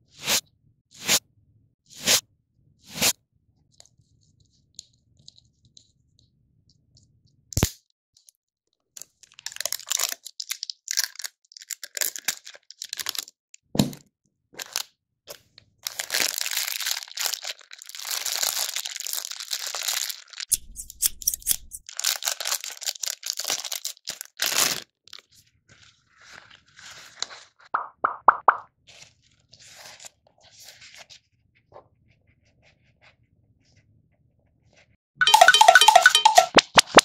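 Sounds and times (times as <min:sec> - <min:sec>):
plastic wrapping crinkling and tearing: 0:09.0 - 0:13.3, 0:14.6 - 0:14.8, 0:15.8 - 0:25.3
sharp tap: 0:27.8 - 0:28.6.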